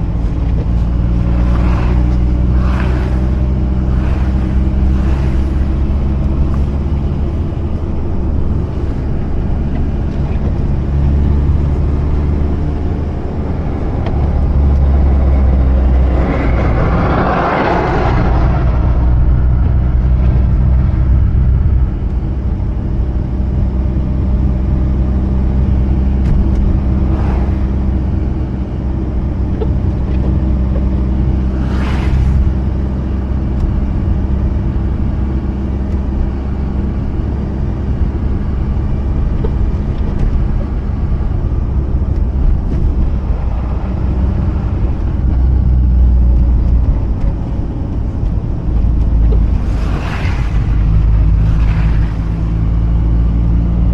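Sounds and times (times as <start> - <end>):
car engine drone: 0.0 - 53.9
road noise: 0.0 - 53.9
brief whooshes: 0.8 - 7.0, 26.8 - 28.2, 31.1 - 33.3, 49.4 - 53.4.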